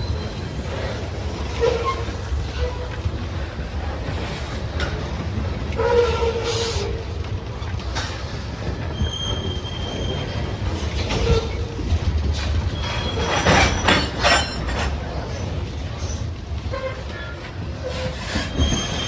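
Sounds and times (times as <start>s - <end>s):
train wheels squealing: 0.0s - 5.1s, 5.8s - 7.0s, 8.0s - 19.0s
freight train rumbling: 0.0s - 19.0s.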